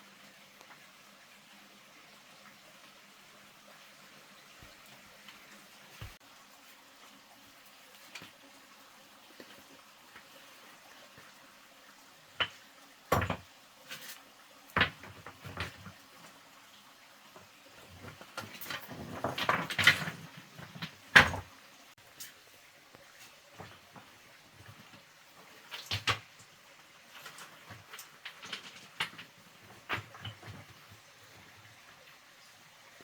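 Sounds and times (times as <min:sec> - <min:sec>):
hard objects knocking and clattering: 0:13.1 - 0:13.4, 0:14.8 - 0:15.9, 0:18.0 - 0:21.4, 0:27.3 - 0:30.9.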